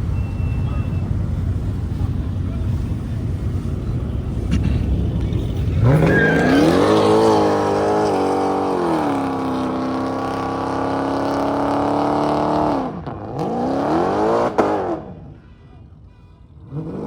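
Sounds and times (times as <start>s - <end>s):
car engine revving hard: 5.7s - 15.2s.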